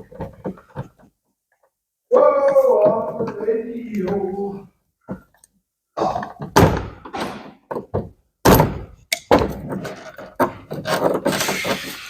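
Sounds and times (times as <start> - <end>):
knocks and thuds on car body: 6.4 - 9.6.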